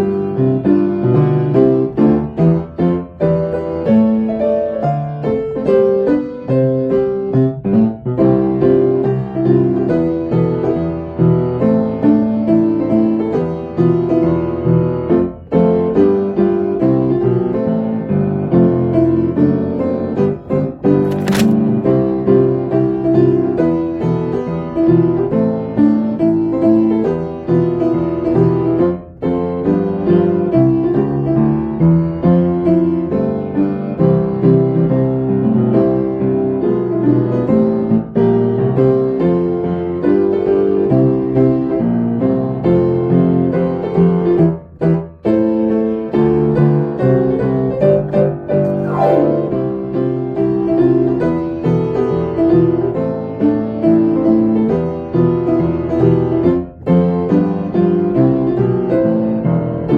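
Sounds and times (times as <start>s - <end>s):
solo piano melody: 48.5s - 50.2s
piano glissando: 48.6s - 50.2s.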